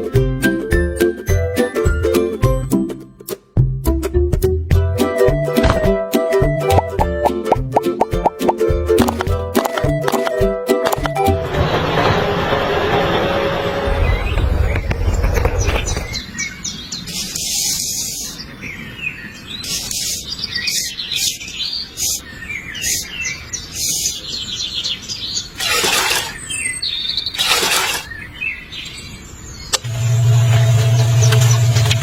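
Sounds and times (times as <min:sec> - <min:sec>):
small birds chirping: 0:13.9 - 0:29.8.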